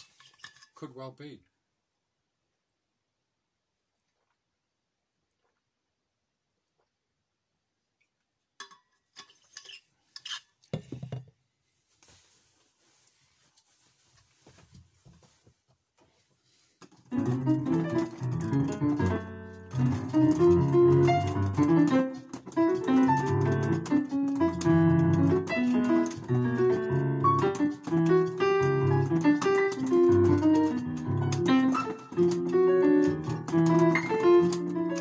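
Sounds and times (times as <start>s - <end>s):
piano playing: 17.1s - 35.0s.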